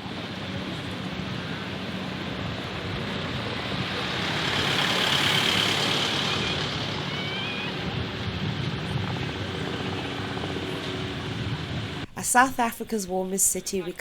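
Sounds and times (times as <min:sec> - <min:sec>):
engine droning: 0:00.0 - 0:12.2
wash of noise: 0:02.2 - 0:07.9.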